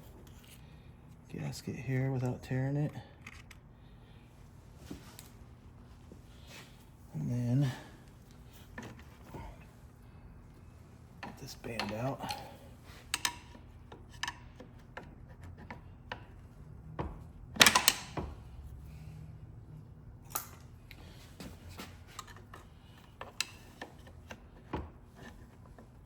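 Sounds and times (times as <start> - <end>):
metallic clicks of hand tools: 13.1 - 13.6.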